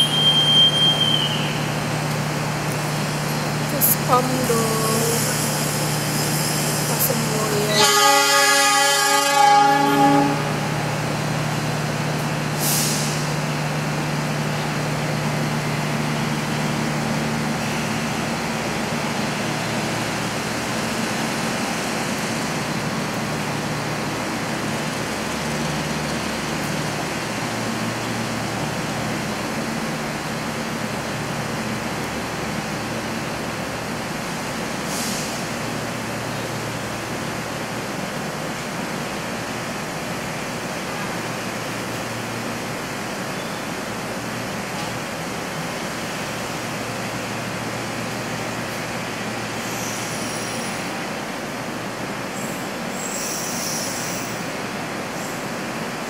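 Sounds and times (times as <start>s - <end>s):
train rumbling: 0.0s - 56.0s
short air hisses: 12.6s - 13.3s, 34.9s - 35.5s.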